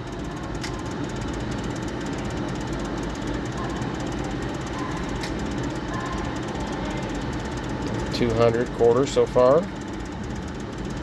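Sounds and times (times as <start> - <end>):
slot machine rattle of ticks: 0.0 - 11.0.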